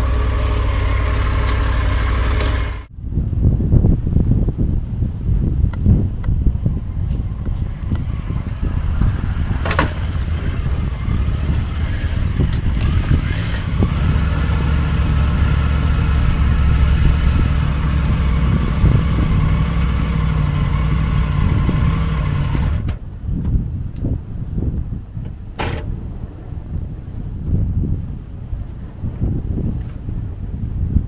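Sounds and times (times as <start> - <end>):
motorcycle engine running: 0.0 - 2.9, 4.8 - 23.1.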